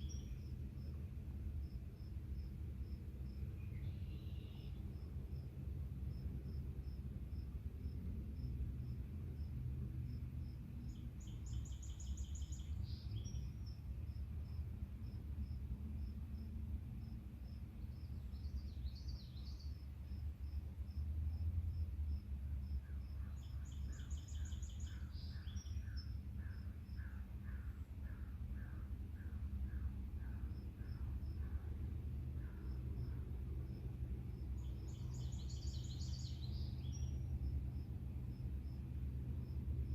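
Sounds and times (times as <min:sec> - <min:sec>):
songbird trilling: 0:00.0 - 0:00.4, 0:22.8 - 0:31.7, 0:34.6 - 0:37.2
cricket chirping: 0:00.0 - 0:39.9.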